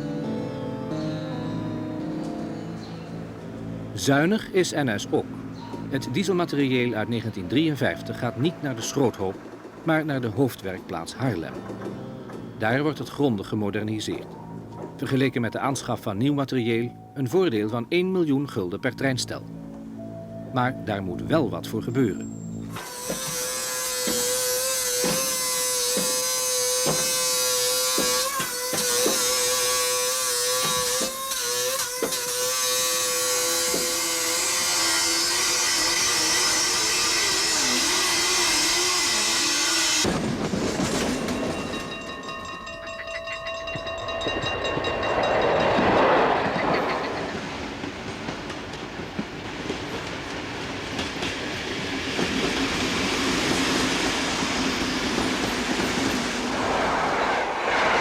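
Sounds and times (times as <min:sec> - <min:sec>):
train clickety-clack on rails: 0:07.2 - 0:13.2, 0:24.0 - 0:29.7, 0:39.9 - 0:56.5.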